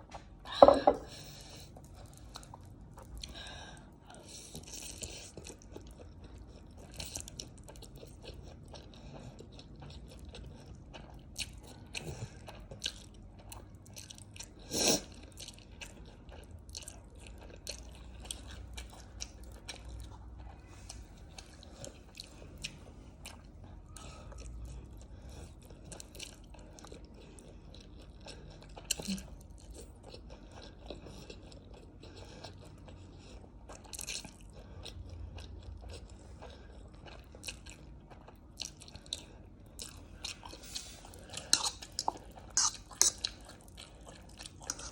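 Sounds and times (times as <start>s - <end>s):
person biting and chewing food: 44.5s - 44.9s.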